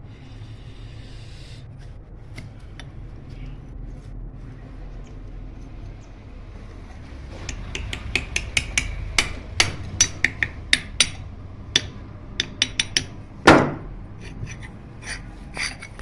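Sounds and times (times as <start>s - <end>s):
sharp metallic taps: 7.5s - 14.6s
heavy knock on metal part: 11.8s - 13.9s.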